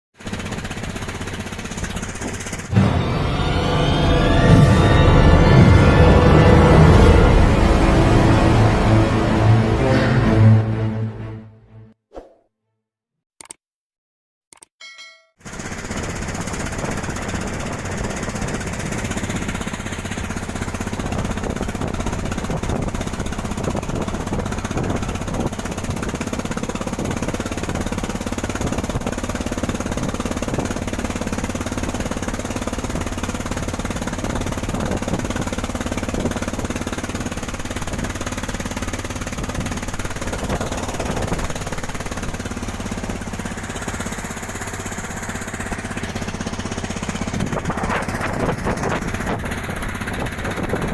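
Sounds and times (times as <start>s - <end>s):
boat engine running: 0.2s - 10.4s, 15.4s - 50.9s.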